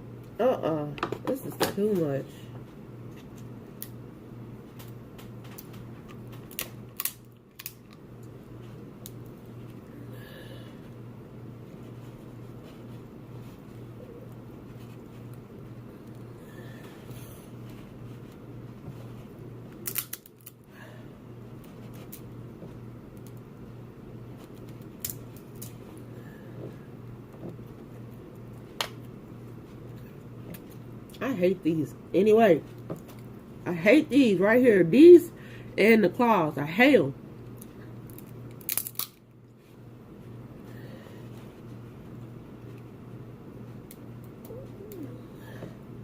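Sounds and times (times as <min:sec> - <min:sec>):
steady low hum: 0:00.0 - 0:46.0
crab shells cracking: 0:06.4 - 0:08.0, 0:19.7 - 0:20.7, 0:24.8 - 0:25.7, 0:38.0 - 0:39.2.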